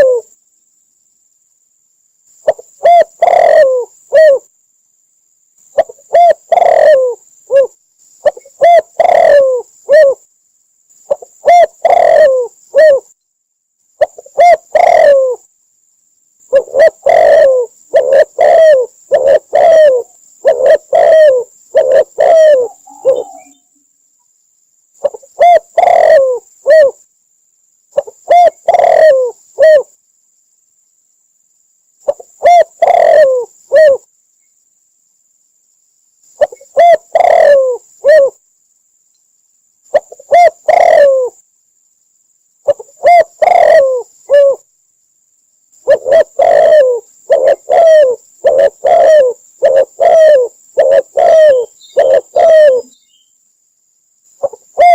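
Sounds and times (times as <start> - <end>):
dove cooing: 0.0 - 0.3, 2.4 - 4.5, 5.7 - 10.2, 11.1 - 13.1, 14.0 - 15.5, 16.5 - 23.7, 25.0 - 27.0, 28.0 - 30.0, 32.0 - 34.1, 36.4 - 38.4, 39.9 - 41.4, 42.6 - 44.7, 45.8 - 53.0, 54.4 - 54.9.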